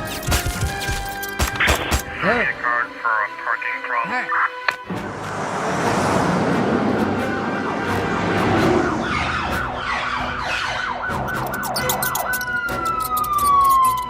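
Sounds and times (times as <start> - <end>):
police siren: 6.8 - 14.0.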